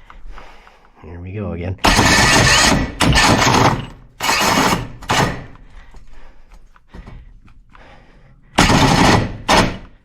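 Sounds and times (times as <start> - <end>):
power drill boring through wall: 1.8 - 5.5, 8.6 - 9.9.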